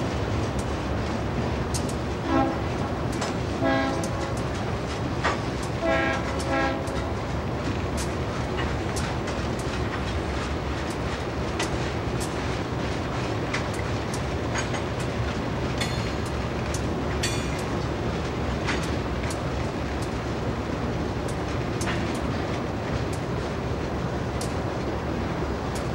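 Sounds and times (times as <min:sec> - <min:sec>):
wheels clicking over rail joints: 0:00.2 - 0:25.9
train horn blasts: 0:02.2 - 0:02.7, 0:03.6 - 0:04.3, 0:05.8 - 0:07.0.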